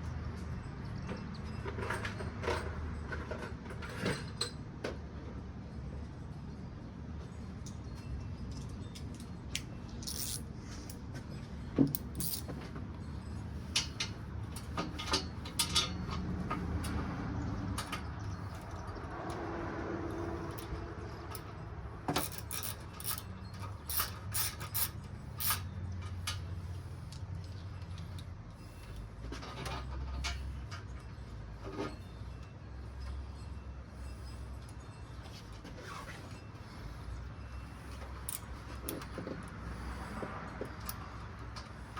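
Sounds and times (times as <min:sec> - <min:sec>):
metal part clinking against metal: 0:07.6 - 0:11.0, 0:11.8 - 0:17.0, 0:20.4 - 0:26.5, 0:37.8 - 0:39.2.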